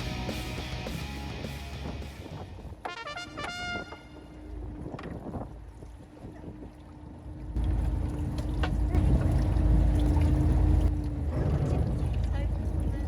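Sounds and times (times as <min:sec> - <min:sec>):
wind buffeting microphone: 0:03.6 - 0:13.0.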